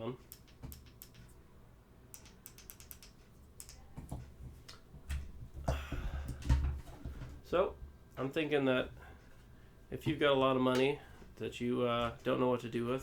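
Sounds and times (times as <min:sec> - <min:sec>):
light buttons clicking: 0:00.2 - 0:01.3, 0:02.1 - 0:03.8.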